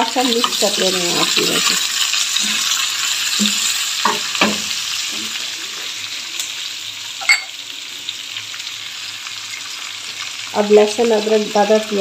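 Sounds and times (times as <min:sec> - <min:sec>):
onions and meat sizzling in oil: 0:00.0 - 0:12.0
sharp clink: 0:07.2 - 0:07.5.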